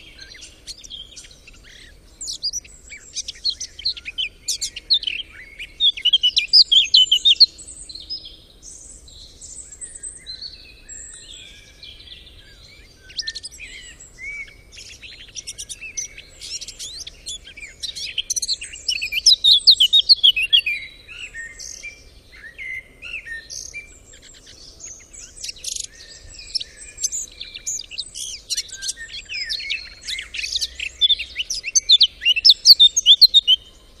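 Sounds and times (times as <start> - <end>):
songbirds chirping and singing: 0.0 - 34.0.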